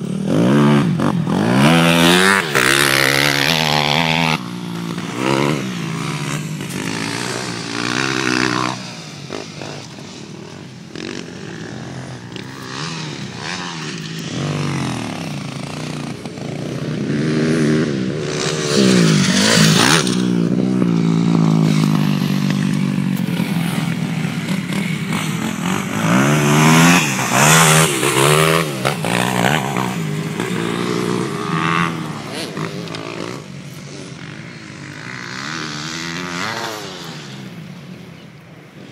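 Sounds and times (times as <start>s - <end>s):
dirt bike engines revving: 0.0s - 38.9s.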